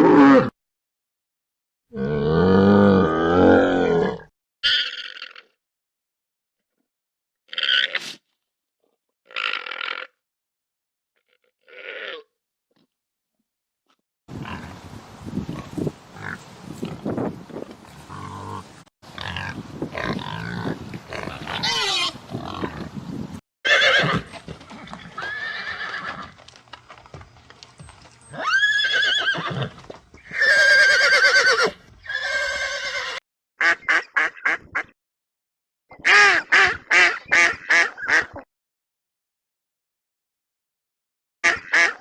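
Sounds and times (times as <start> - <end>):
rough noisy animal calls: 18.0 - 22.9
short quack-like calls: 33.6 - 34.9, 35.9 - 38.5, 41.4 - 42.0.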